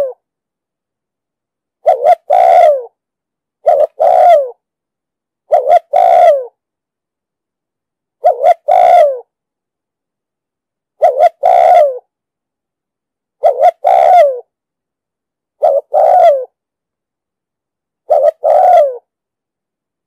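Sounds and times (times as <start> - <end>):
dove cooing: 0.0 - 0.2, 1.8 - 3.0, 3.6 - 4.6, 5.5 - 6.6, 8.2 - 9.3, 11.0 - 12.0, 13.4 - 14.5, 15.6 - 16.6, 18.0 - 19.1.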